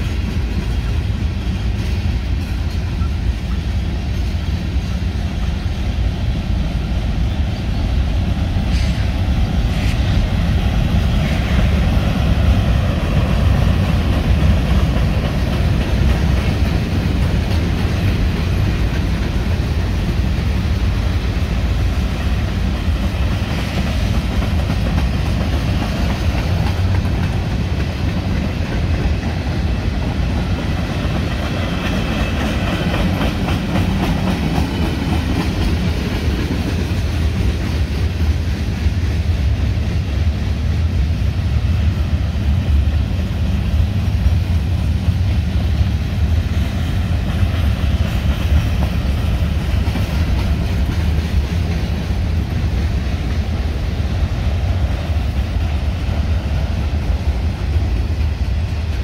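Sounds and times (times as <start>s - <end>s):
freight cars rumbling on rails: 0.0s - 59.0s.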